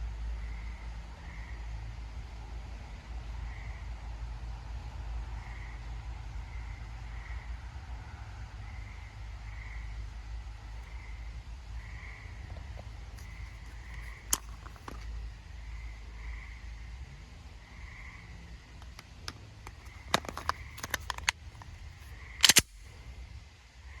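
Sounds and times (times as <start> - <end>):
sharp clicks and clacks: 18.8 - 21.8, 22.4 - 22.7.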